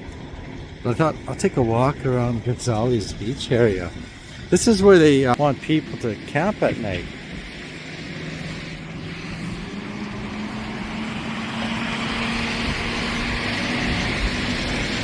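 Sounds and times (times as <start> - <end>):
vehicle engine hum: 0.0 - 15.0
hiss: 7.4 - 15.0.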